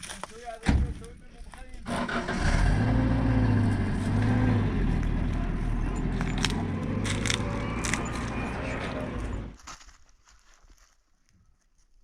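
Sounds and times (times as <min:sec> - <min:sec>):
engine running with low hum: 0:01.9 - 0:09.6.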